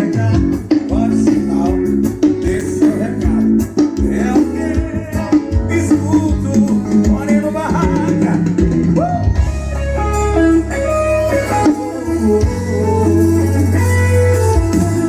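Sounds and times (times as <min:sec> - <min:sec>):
heavy bass line: 0:00.0 - 0:15.0
rock music over sound system: 0:00.0 - 0:15.0.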